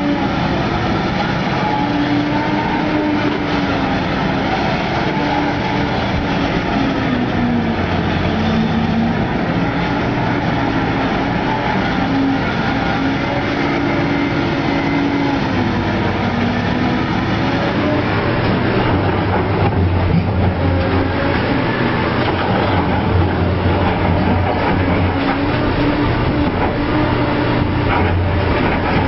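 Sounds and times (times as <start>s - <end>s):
heavy diesel machinery running: 0.0s - 29.0s.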